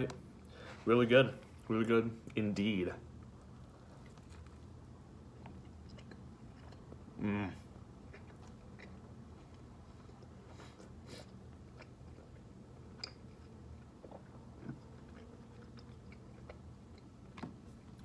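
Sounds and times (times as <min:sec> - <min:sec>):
low room hum: 0:00.0 - 0:18.0
chewing and biting: 0:03.2 - 0:07.2, 0:07.8 - 0:18.0.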